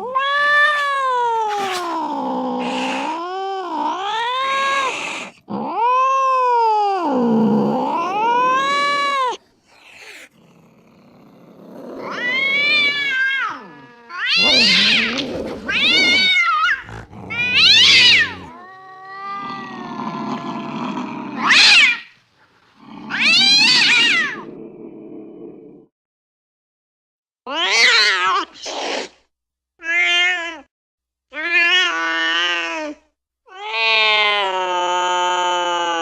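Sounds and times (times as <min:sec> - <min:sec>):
cat yowling: 0:00.0 - 0:10.3, 0:12.0 - 0:22.1, 0:23.0 - 0:24.5, 0:27.5 - 0:28.5
cat growling: 0:00.0 - 0:25.9.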